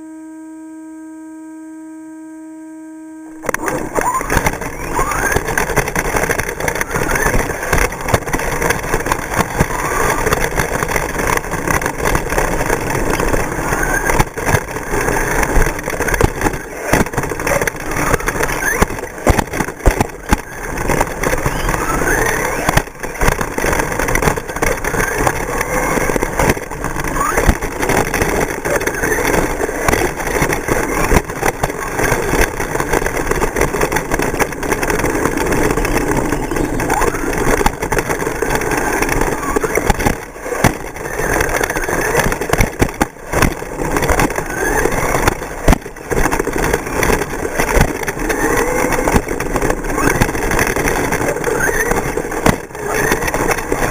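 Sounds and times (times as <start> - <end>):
rc truck motors whining: 0.0 - 53.9
continuous noisy wash: 3.3 - 53.9.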